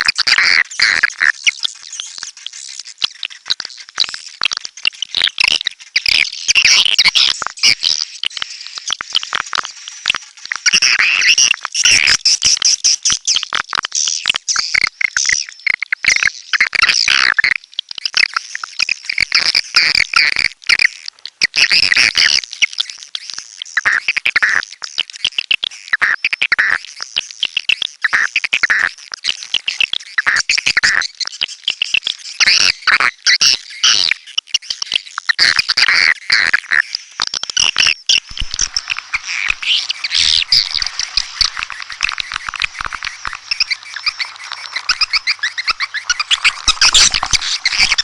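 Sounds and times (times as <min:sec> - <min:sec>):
swiftlets twittering: 0:38.1 - 0:48.0.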